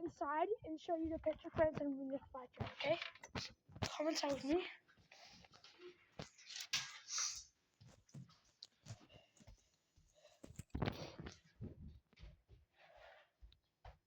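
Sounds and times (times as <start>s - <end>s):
indoor footsteps: 0.6s - 7.0s, 7.8s - 14.0s
clicks and knocks of handling things: 2.6s - 4.4s, 5.4s - 9.6s, 10.2s - 11.8s.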